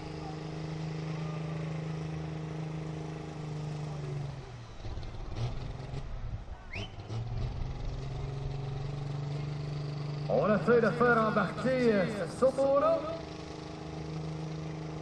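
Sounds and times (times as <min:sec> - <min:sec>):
engine idling: 0:00.0 - 0:07.0, 0:07.6 - 0:15.0
rising whistle: 0:06.7 - 0:07.1.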